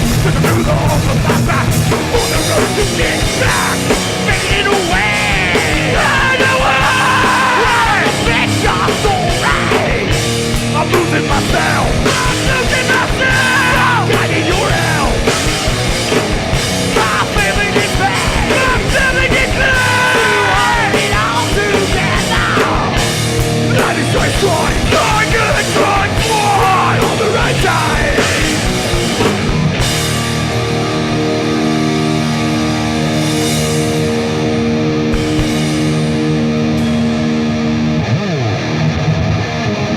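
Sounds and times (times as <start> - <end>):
shouted vocals: 0.0 - 10.2, 10.8 - 15.5, 16.9 - 23.1, 23.7 - 29.0
pounding drums: 0.0 - 31.1, 35.1 - 37.3
distorted electric guitars: 0.0 - 39.9.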